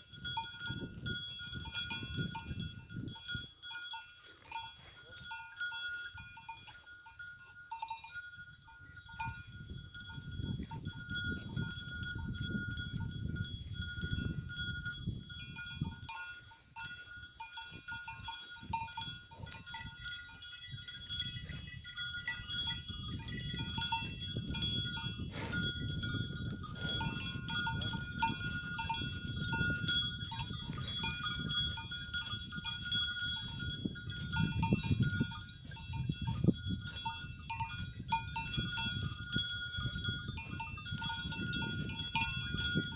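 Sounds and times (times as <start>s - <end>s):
livestock bells clinking: 0.0s - 42.9s.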